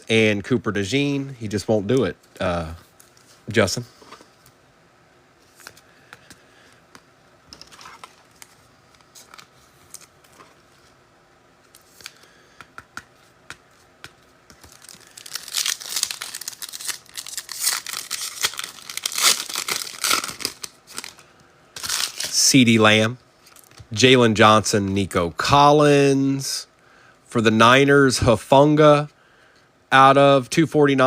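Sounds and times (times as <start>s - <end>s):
foil wrapper tearing and crinkling: 14.6s - 21.2s, 21.8s - 22.4s.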